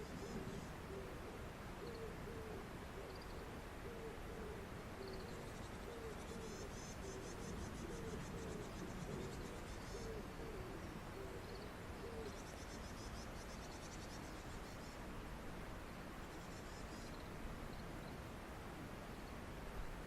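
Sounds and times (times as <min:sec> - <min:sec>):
low hooting bird calls: 0:00.0 - 0:15.0.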